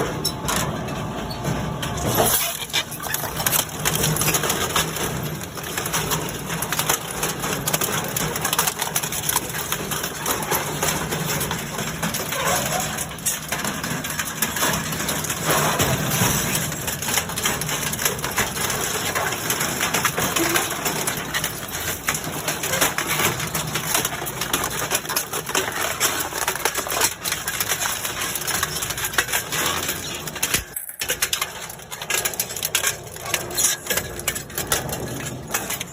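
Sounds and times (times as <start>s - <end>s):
metal shredder grinding scrap: 0.0s - 35.9s.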